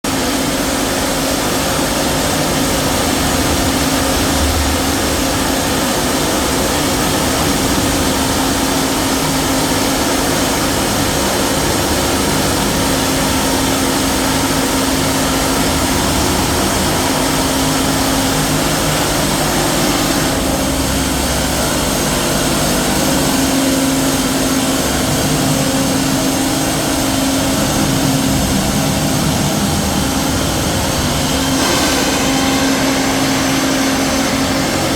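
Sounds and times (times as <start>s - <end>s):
constant low hum: 0.2s - 34.9s.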